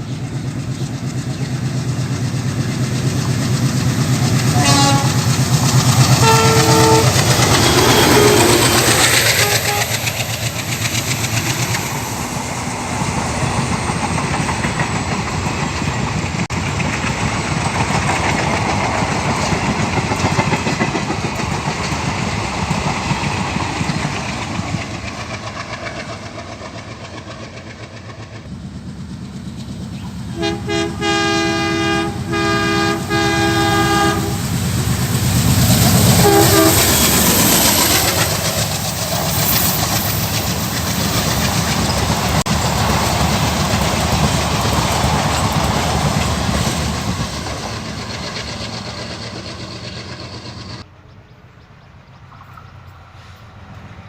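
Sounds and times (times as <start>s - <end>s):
locomotive engine low rumble: 0.0s - 25.4s, 28.1s - 54.0s
train rumbling on rails: 0.0s - 54.0s
locomotive horn short blasts: 4.4s - 5.3s, 6.2s - 10.1s, 30.3s - 34.4s, 36.1s - 37.0s.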